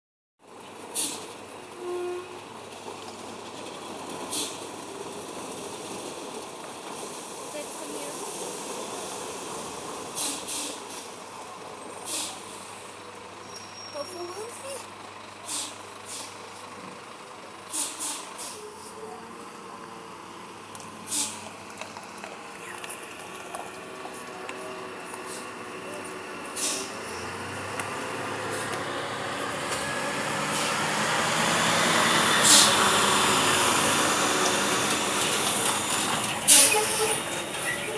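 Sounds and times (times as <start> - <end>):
air brake hisses: 1.0 - 1.3, 10.1 - 11.1, 12.0 - 12.7, 15.4 - 16.4, 17.7 - 18.7, 21.1 - 21.5, 26.6 - 27.0, 32.4 - 32.8, 36.5 - 37.9
sharp air hiss: 10.1 - 11.0, 17.7 - 18.6
truck engine running: 10.8 - 37.9.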